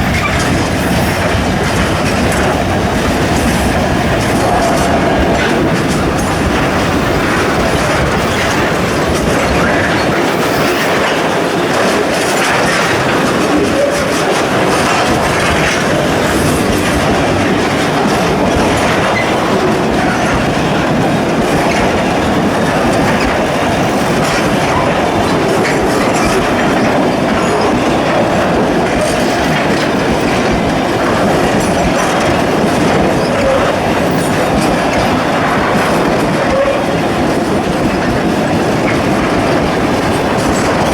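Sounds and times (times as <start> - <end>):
steel wheels clattering on rails: 0.0 - 40.9.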